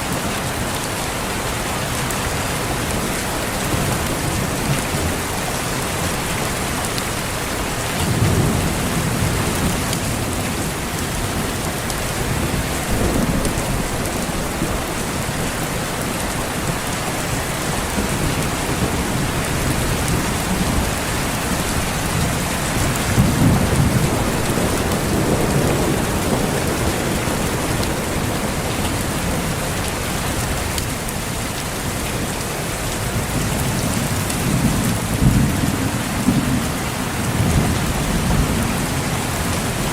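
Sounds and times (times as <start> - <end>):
heavy rain hissing: 0.0 - 39.9
distant thunder rumbling: 7.8 - 30.6.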